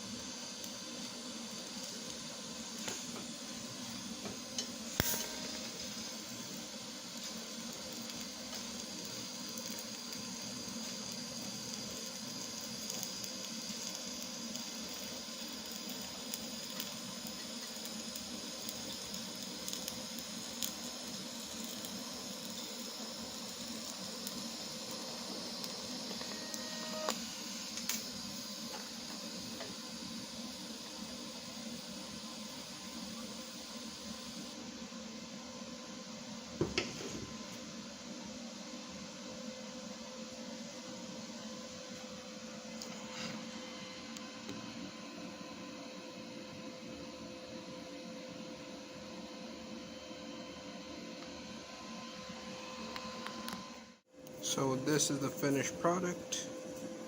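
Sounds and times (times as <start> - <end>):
welding arc crackling: 0.0 - 34.6, 54.4 - 56.4.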